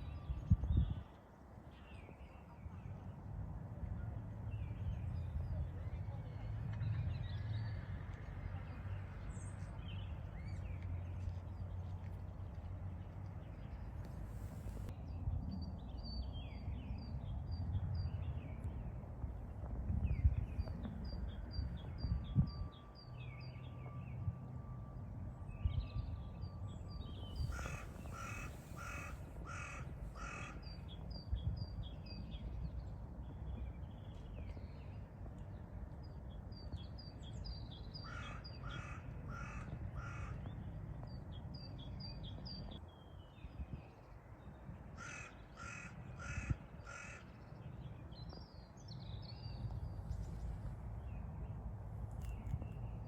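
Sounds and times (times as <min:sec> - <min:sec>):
small birds chirping: 0:27.2 - 0:31.4
bird giving harsh caws: 0:27.5 - 0:30.6, 0:45.0 - 0:47.2.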